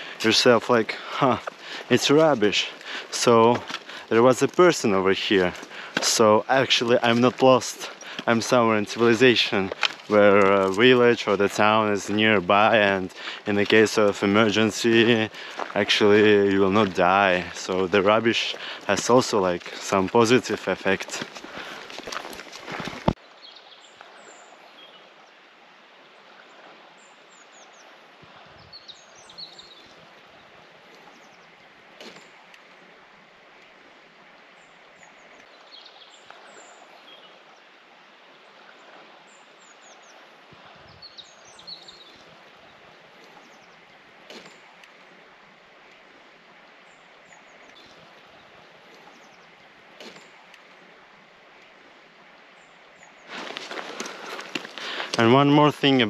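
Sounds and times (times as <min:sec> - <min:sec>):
small birds chirping: 0:00.0 - 0:25.1, 0:28.6 - 0:32.5, 0:40.9 - 0:45.1, 0:46.9 - 0:50.9, 0:52.6 - 0:56.0
steady outdoor hiss: 0:00.0 - 0:56.0.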